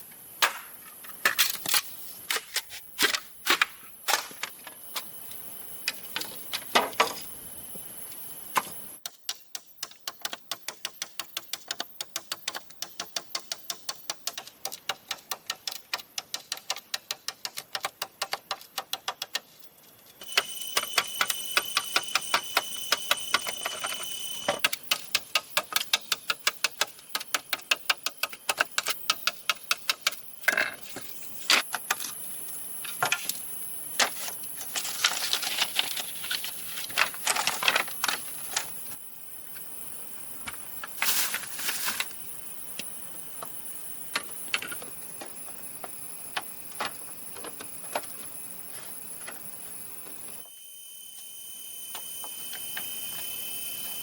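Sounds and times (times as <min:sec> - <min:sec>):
high whining tones: 0:20.2 - 0:24.7, 0:50.0 - 0:54.0.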